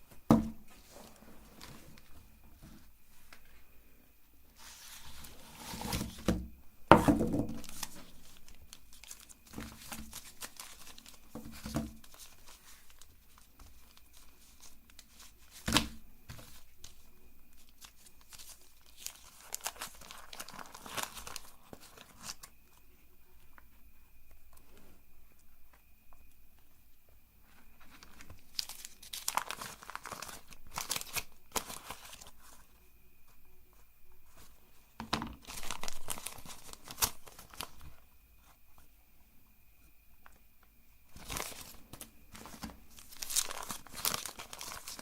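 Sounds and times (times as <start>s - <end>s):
wrappers tearing and crinkling: 7.5s - 17.0s, 17.6s - 22.5s, 28.0s - 32.4s, 35.4s - 37.8s, 41.2s - 45.0s.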